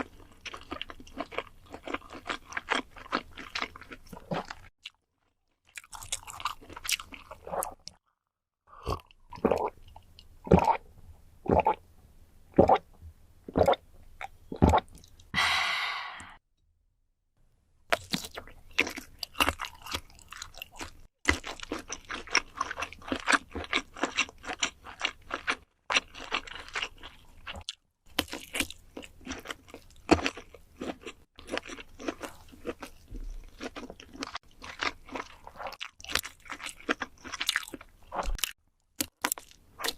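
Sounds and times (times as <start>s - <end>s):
crackly chewing: 0.0s - 8.0s, 17.9s - 39.9s.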